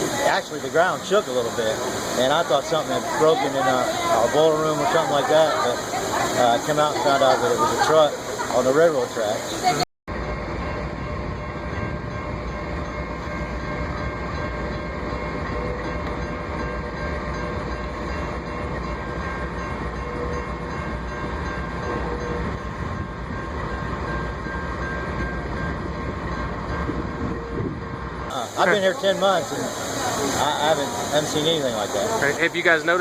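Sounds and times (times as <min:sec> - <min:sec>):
train rumbling on tracks: 0:01.0 - 0:33.0.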